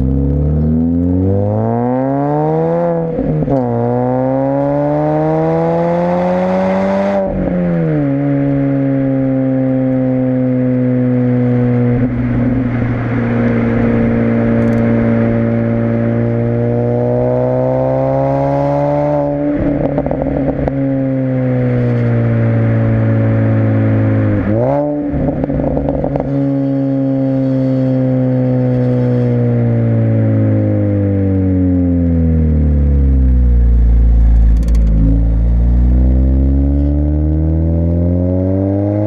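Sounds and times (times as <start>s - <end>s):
car engine running: 7.3s - 27.6s, 28.2s - 38.4s
rough crackly exhaust: 11.5s - 17.2s, 19.2s - 30.6s, 32.0s - 37.8s.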